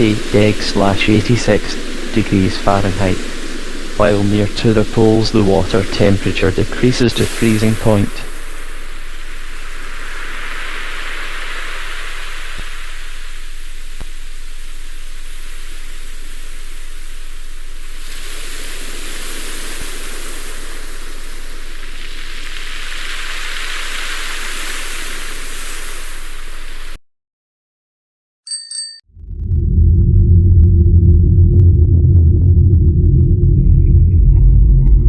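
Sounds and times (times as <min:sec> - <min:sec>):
ocean surf waves washing in: 0:00.0 - 0:27.0.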